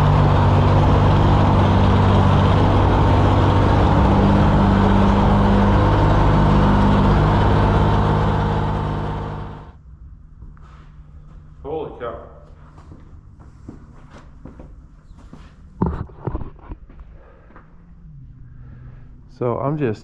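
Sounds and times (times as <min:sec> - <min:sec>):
pressure washer engine hum: 0:00.0 - 0:09.8.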